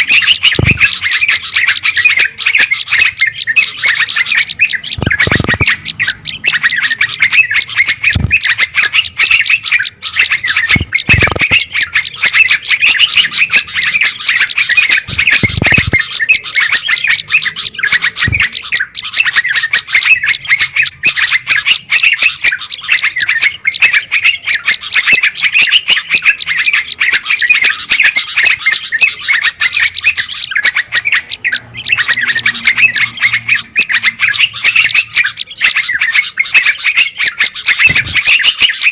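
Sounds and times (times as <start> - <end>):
songbirds chattering and chirping: 0.0 - 38.9.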